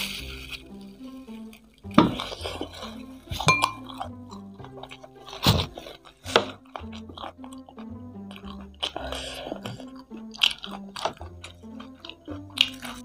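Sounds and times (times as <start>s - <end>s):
background music: 0.0s - 13.0s
crunchy chewing of fried food: 0.0s - 13.0s
short ringing clink: 3.5s - 3.8s.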